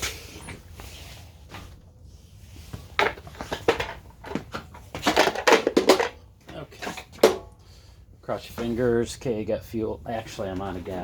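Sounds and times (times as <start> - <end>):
handling clunks and rattles: 2.6 - 9.0.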